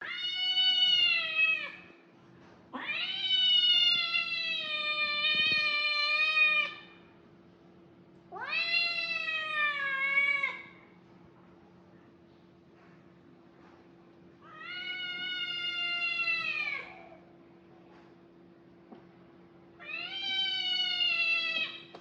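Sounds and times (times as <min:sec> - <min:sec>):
kitten meowing loudly: 0:00.0 - 0:01.9, 0:19.8 - 0:21.9.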